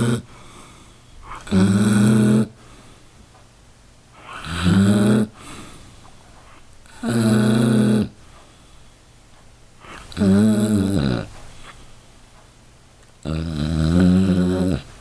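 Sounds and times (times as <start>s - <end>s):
dog snoring: 0.0s - 0.4s, 1.2s - 2.6s, 4.2s - 5.6s, 6.9s - 8.2s, 9.8s - 11.4s, 13.2s - 15.0s.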